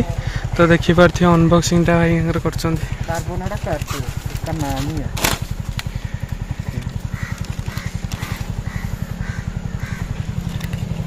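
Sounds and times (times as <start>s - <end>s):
motorcycle engine idling: 0.0s - 11.0s
bird calling: 2.8s - 11.0s.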